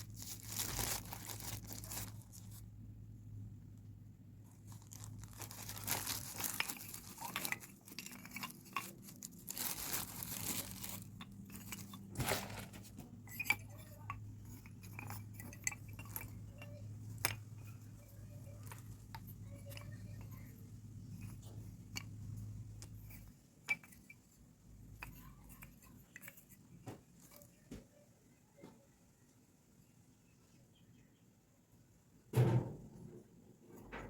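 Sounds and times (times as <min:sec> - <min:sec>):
packaging rustling and crunching: 0:00.0 - 0:02.7, 0:04.4 - 0:16.4
earthenware clinking and knocking: 0:04.6 - 0:24.3.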